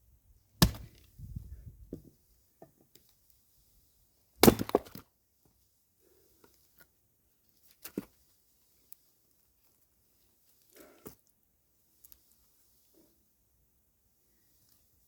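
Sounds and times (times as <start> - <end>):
axe splitting firewood: 0.6 - 1.1, 4.4 - 5.0.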